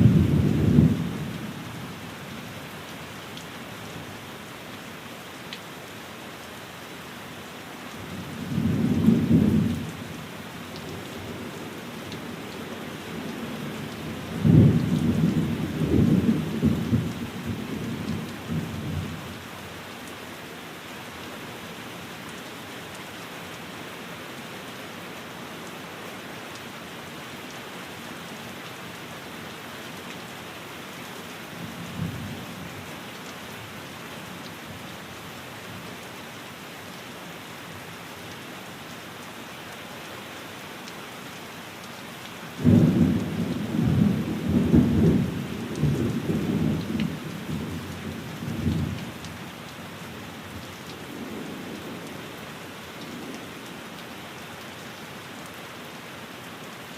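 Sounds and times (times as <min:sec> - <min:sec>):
low rumble of thunder: 0:00.0 - 0:01.6, 0:08.2 - 0:10.1, 0:13.5 - 0:19.3, 0:42.6 - 0:49.2
rain on a window: 0:00.0 - 0:56.9.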